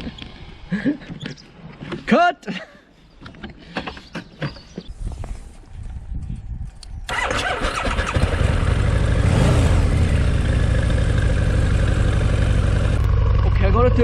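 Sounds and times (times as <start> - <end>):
motorcycle engine starting and idling: 7.0 - 14.0.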